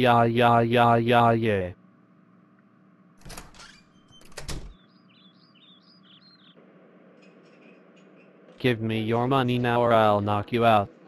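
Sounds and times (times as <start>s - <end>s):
faint steady hum: 0.0s - 3.4s
high bird chirps: 3.9s - 6.6s.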